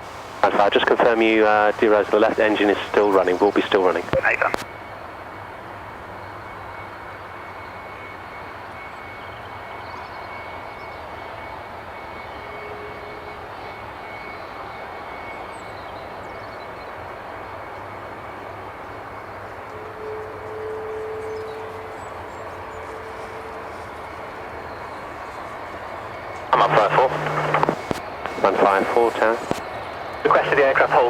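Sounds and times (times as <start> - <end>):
high whine: 0.0 - 4.7, 19.0 - 31.0
jet engine running: 0.0 - 31.0.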